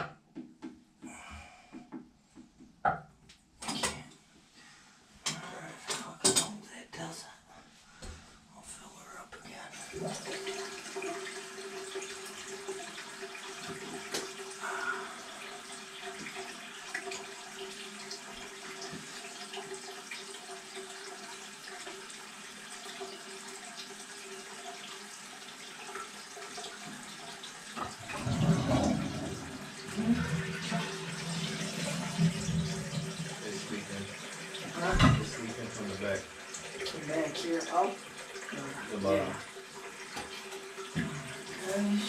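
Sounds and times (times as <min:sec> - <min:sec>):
water running into toilet tank: 0:09.7 - 0:42.0.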